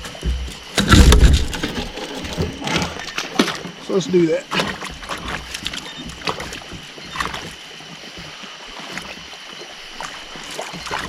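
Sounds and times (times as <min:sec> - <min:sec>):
knocks and clicks on a kayak: 0:00.0 - 0:03.7.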